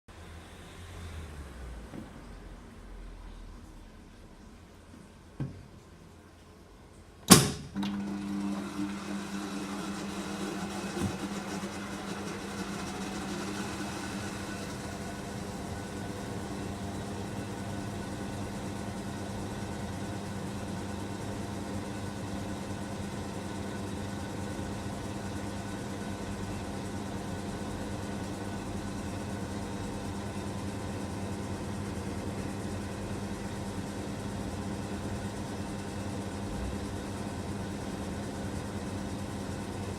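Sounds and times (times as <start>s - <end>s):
washing machine motor humming: 7.2s - 39.9s.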